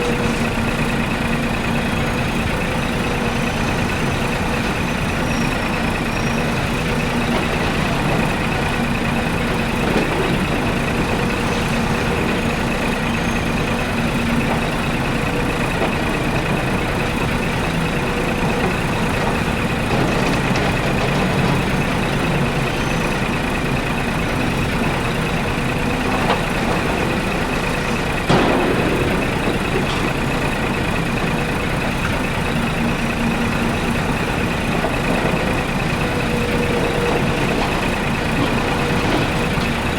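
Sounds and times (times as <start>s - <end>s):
miniature excavator running with whine: 0.0s - 39.9s.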